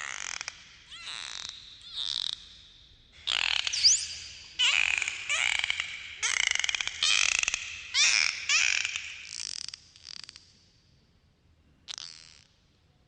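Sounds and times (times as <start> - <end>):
dolphin squawking pulsed calls: 3.2 - 9.4
dolphin clicking: 3.2 - 9.7.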